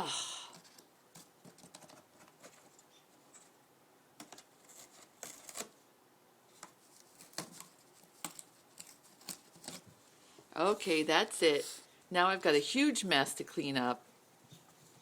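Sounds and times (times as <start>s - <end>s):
bird beak tearing cardboard: 4.2s - 5.8s, 6.6s - 9.9s.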